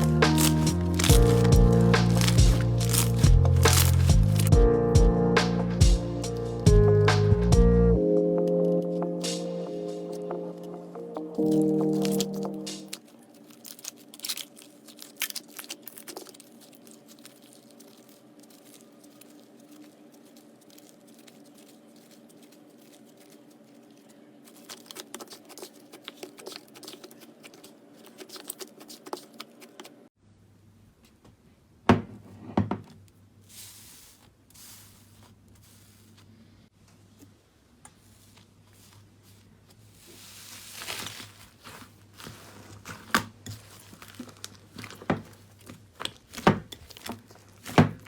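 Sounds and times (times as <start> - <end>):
slime crackling and popping: 0.0 - 4.6, 11.4 - 30.0, 40.0 - 48.0
slime squishes: 0.0 - 4.6, 11.4 - 30.1, 33.5 - 36.5, 37.1 - 48.0
soft hissy rustles: 33.4 - 36.7, 37.8 - 45.7.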